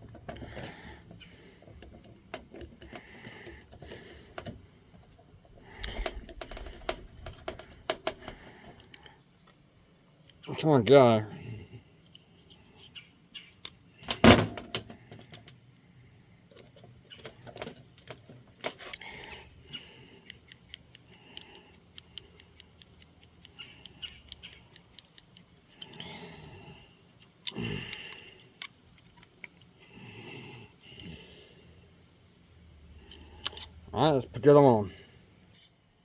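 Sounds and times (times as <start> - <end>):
metal parts clinking: 16.5 - 19.4
quick ticks: 19.2 - 26.0.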